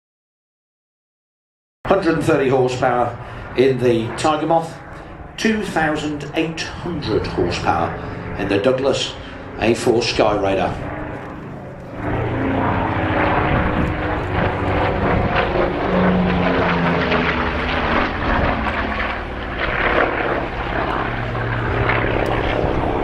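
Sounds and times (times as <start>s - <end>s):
propeller plane engine flying past: 1.9s - 23.0s.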